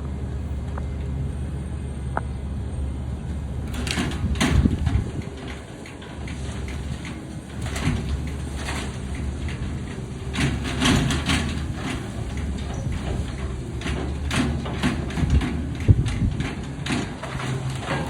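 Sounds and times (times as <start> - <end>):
diesel engine running: 0.0 - 18.0
grapple scraping and crunching debris: 3.6 - 18.0.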